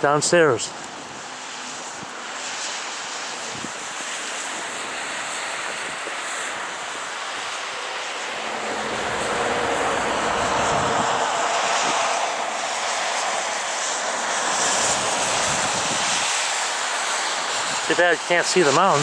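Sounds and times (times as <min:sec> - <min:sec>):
wind rushing: 0:04.6 - 0:18.1.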